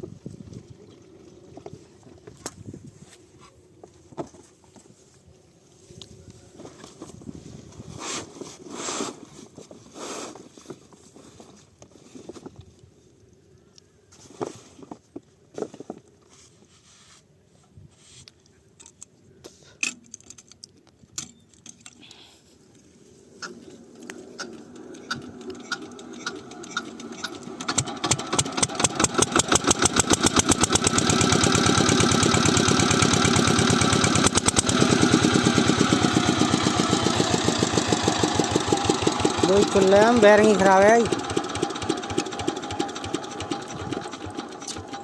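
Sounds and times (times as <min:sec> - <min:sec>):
diesel pump engine running: 0:23.4 - 0:45.0.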